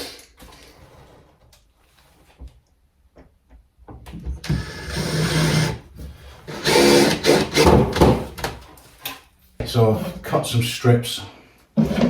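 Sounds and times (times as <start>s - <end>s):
handheld power tool running: 4.5s - 5.8s, 6.5s - 8.0s.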